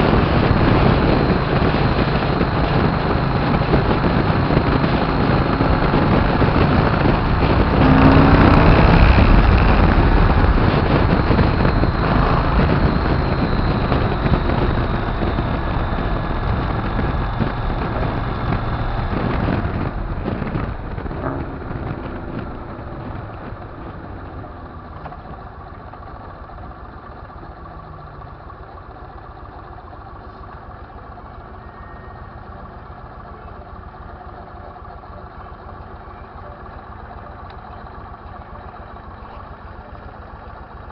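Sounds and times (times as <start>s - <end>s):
wind rushing: 0.0s - 24.6s
motorcycle engine: 0.0s - 40.9s.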